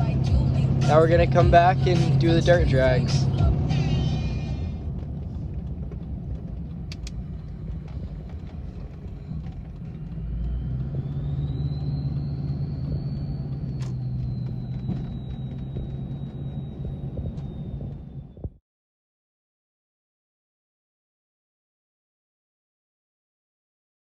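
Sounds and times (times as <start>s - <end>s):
high whine: 0.0s - 18.6s
pickup truck engine drone: 0.0s - 18.6s.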